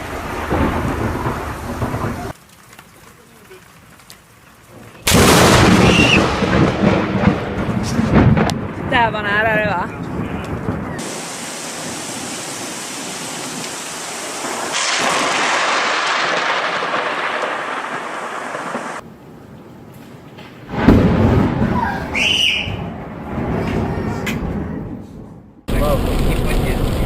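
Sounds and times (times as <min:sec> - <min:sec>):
thunderclap with deep rumble: 0:00.0 - 0:02.4, 0:04.7 - 0:19.0, 0:20.6 - 0:27.0
heavy rain hissing: 0:09.9 - 0:19.0.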